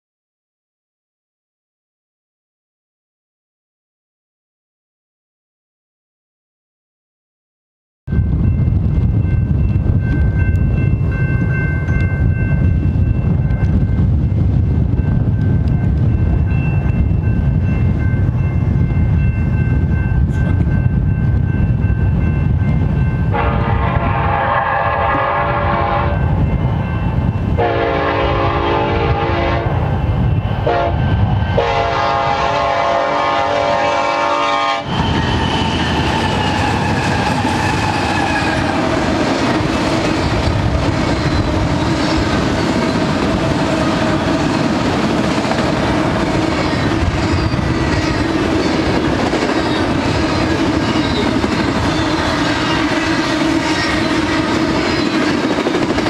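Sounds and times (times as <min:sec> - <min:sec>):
freight train rolling past: 0:08.1 - 0:56.0
locomotive air horn blasts: 0:23.3 - 0:26.4, 0:27.6 - 0:29.8, 0:30.6 - 0:34.9.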